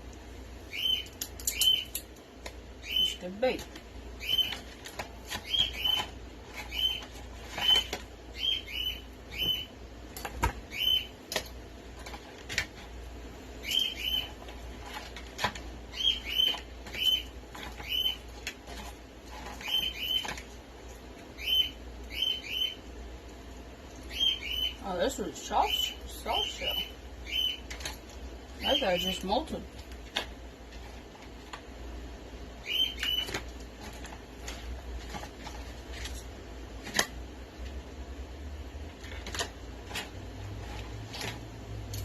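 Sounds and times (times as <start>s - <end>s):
small birds chirping: 0.6s - 2.1s, 2.8s - 9.8s, 10.7s - 11.3s, 13.6s - 14.6s, 15.8s - 20.5s, 21.3s - 22.9s, 23.9s - 29.7s, 32.6s - 34.7s
crab shell cracking: 1.0s - 2.6s.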